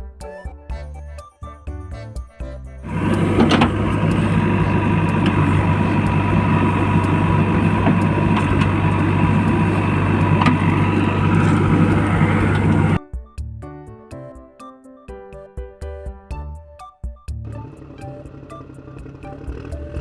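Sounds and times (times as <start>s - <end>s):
heavy vehicle engine running: 2.8s - 13.0s, 17.4s - 20.0s.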